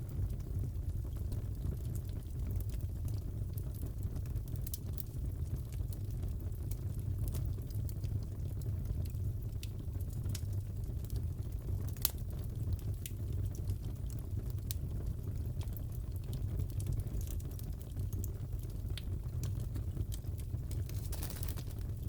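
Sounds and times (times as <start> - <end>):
fire crackling and popping: 0.0 - 22.0.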